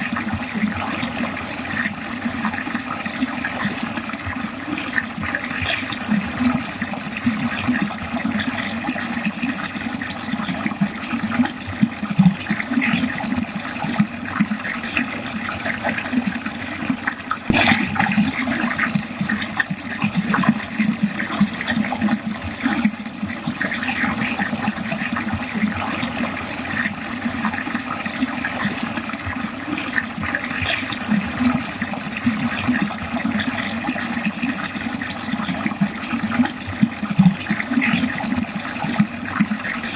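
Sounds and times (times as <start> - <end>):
water draining with bubbling: 0.0 - 39.9.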